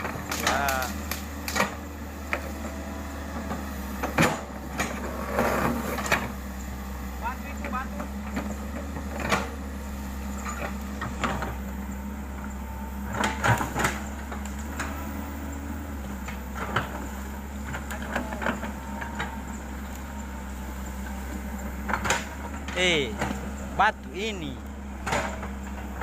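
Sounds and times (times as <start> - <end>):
excavator engine running: 0.0 - 26.0.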